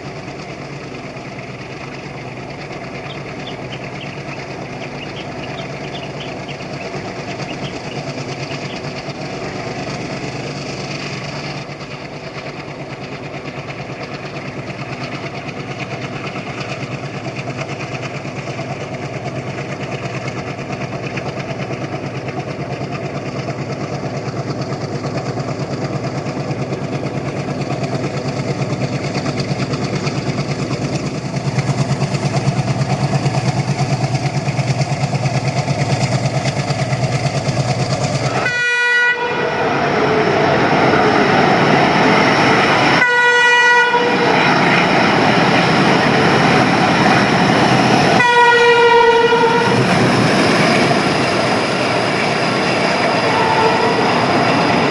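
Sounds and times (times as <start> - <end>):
diesel locomotive engine chugging: 0.0 - 54.9
train running noise: 0.0 - 54.9
train horn blasts: 38.2 - 41.2, 42.9 - 44.5, 48.0 - 50.2, 53.0 - 54.5.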